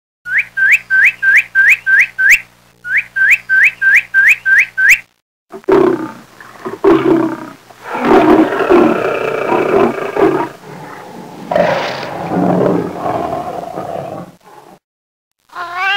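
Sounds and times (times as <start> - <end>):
sharp rising chirps: 0.3 - 5.0
large animal deep rough calls: 5.6 - 14.8.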